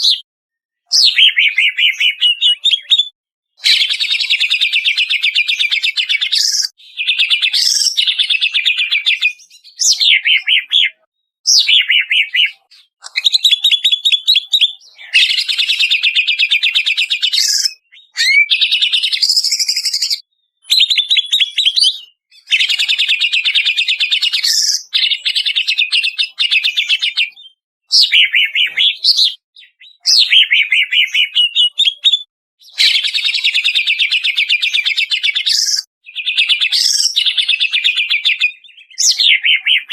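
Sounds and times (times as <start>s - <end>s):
bird chattering trills and whistles: 0.9s - 39.9s.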